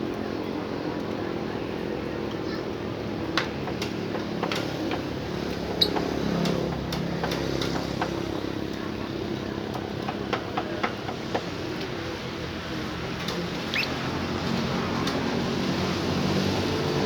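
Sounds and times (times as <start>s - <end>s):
bird chirp: 13.6s - 14.1s.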